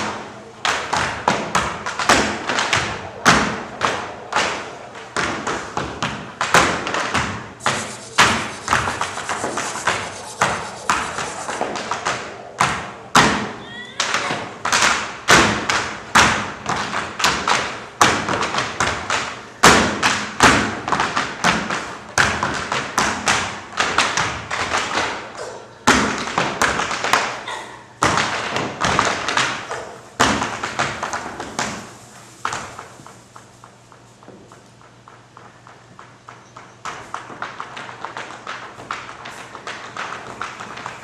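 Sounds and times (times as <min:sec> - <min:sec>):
tap shoes on stage floor: 0:28.0 - 0:41.0.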